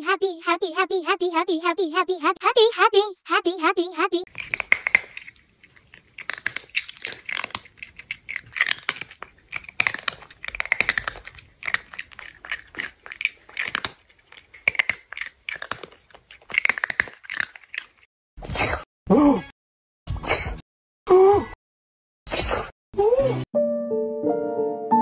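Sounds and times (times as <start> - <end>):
crunchy chewing of crisp food: 4.3 - 18.1.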